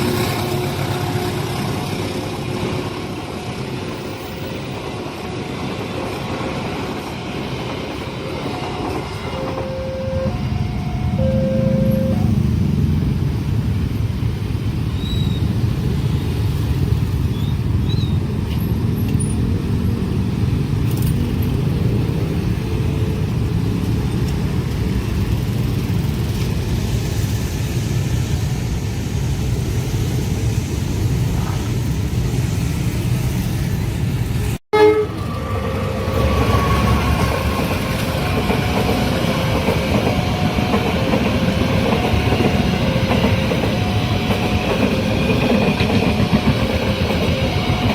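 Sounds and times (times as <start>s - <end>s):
train wheels rumbling on rail: 0.0s - 47.9s
short repeated tones: 9.4s - 12.4s.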